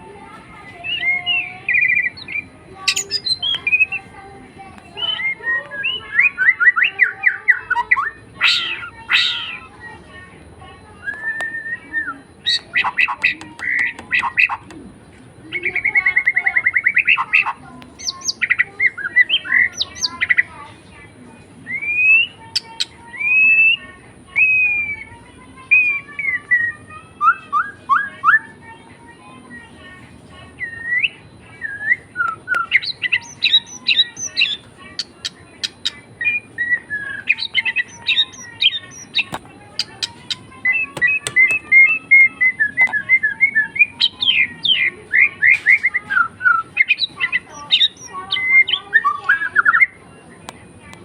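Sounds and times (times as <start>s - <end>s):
pet bird chirping and whistling: 0.9s - 4.0s, 5.0s - 9.7s, 11.0s - 14.8s, 15.5s - 20.4s, 30.6s - 50.0s.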